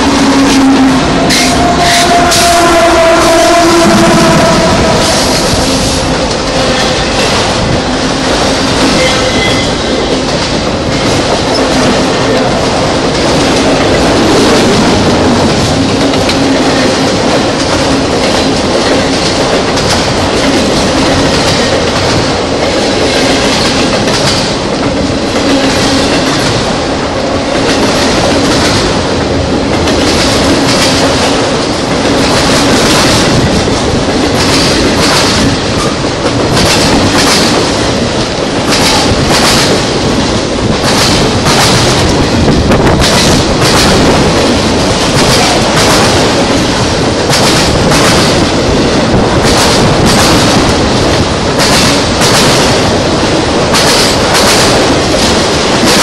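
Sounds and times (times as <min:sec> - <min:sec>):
steel wheels rumbling on rail: 0:00.0 - 0:56.0
wheels clickety-clack: 0:05.1 - 0:56.0.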